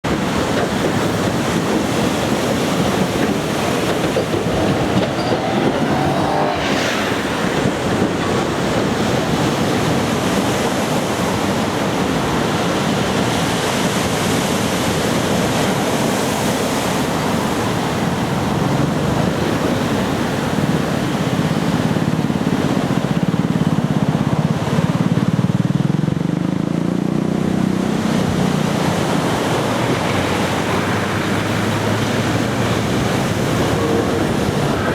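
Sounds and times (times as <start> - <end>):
surf breaking: 0.1 - 25.9, 27.4 - 34.9
wind on microphone: 0.1 - 26.7, 27.3 - 34.9
vehicle passing rumble: 3.2 - 10.5, 18.6 - 34.9.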